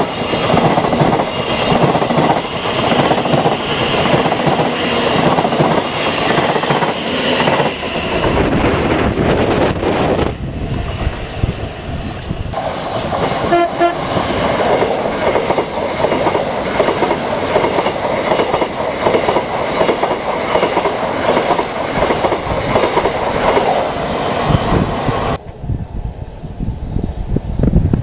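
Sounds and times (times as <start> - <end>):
train rumble and wheel clatter: 0.0 - 28.0
train horn toots: 13.4 - 14.2.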